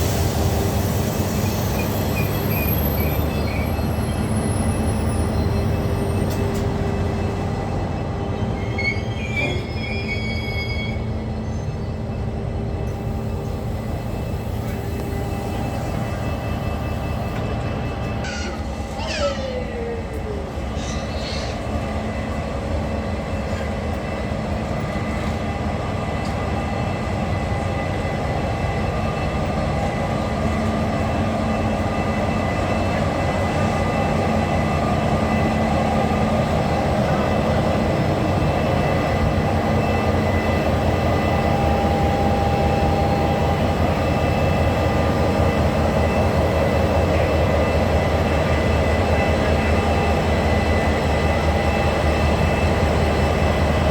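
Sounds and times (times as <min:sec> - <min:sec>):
passenger train running: 0:00.0 - 0:53.9.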